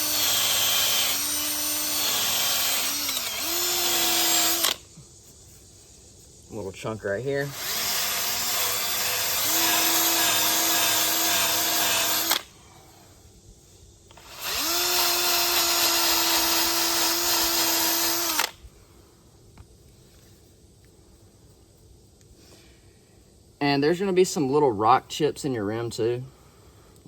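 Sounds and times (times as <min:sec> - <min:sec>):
power drill whining: 0:00.0 - 0:04.8, 0:07.5 - 0:12.5, 0:14.1 - 0:18.6.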